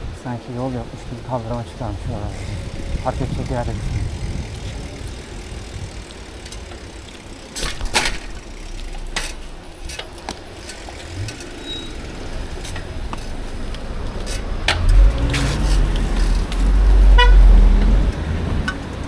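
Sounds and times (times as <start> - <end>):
bicycle tyres on path: 0.0 - 19.0
wind on microphone: 0.8 - 7.0
bicycle clacks and rattles: 1.6 - 19.0.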